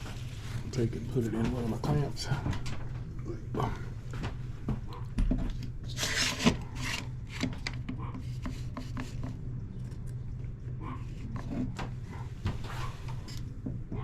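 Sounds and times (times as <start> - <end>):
steady low hum: 0.0 - 14.0
wooden chair parts scraping: 5.4 - 9.2.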